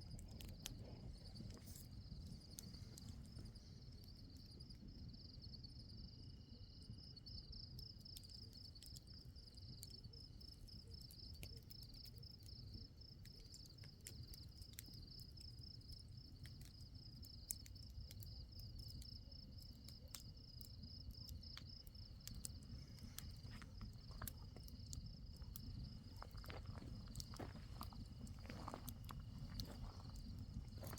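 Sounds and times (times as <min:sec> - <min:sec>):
crickets chirping: 0:00.0 - 0:30.9
faint clicks: 0:16.4 - 0:30.9.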